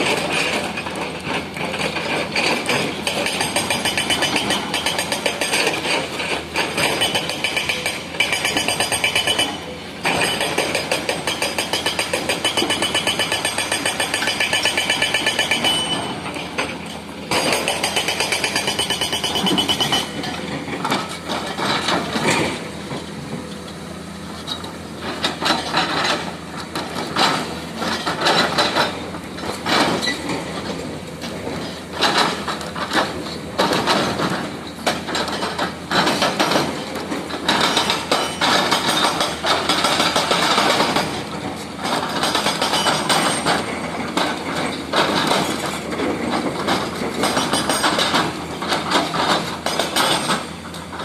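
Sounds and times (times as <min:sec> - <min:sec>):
hydraulic breaker hammering: 0:00.0 - 0:22.7.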